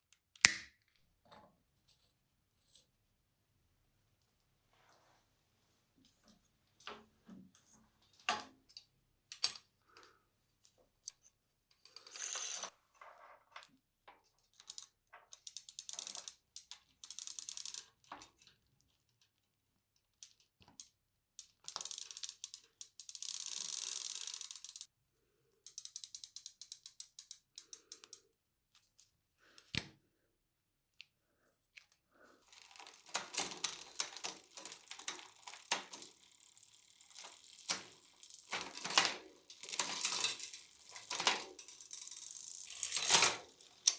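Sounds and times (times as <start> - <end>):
rapid ratcheting ticks: 14.6 - 17.9, 21.4 - 24.9, 25.7 - 28.2.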